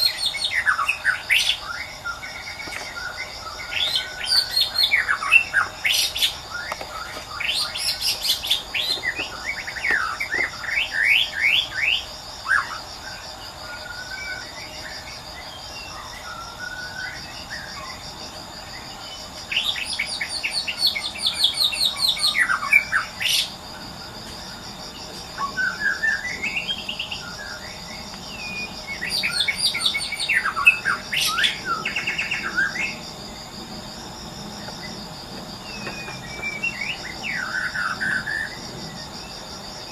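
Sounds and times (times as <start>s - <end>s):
insect trilling: 0.0s - 39.9s
bird singing whistled trills: 25.4s - 33.0s.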